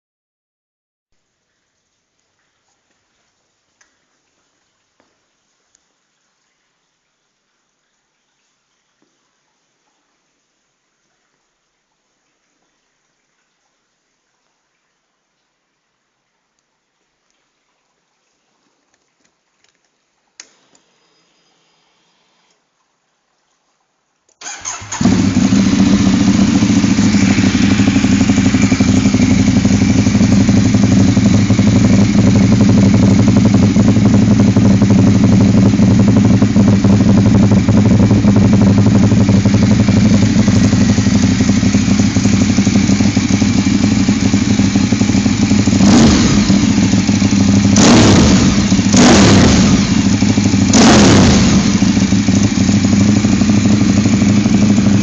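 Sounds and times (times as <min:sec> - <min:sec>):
motorcycle engine idling: 0:24.4 - 0:55.0
throttle blips revving: 0:47.7 - 0:52.0.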